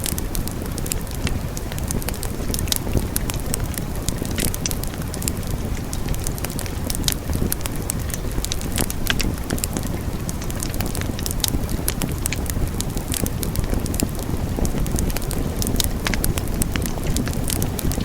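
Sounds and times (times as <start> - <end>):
low rushing of fire: 0.0 - 18.0
wood fire crackling and popping: 0.0 - 18.0.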